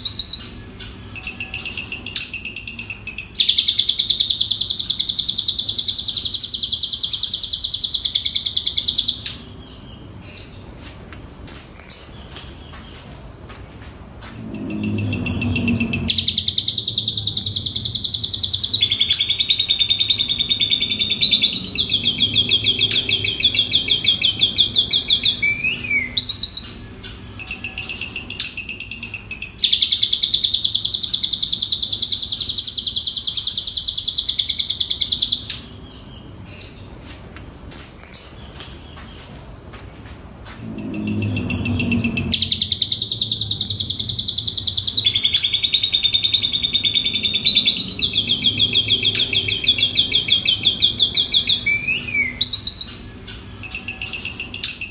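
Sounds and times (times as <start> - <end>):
starling chattering trills: 14.2 - 33.0, 40.5 - 54.9.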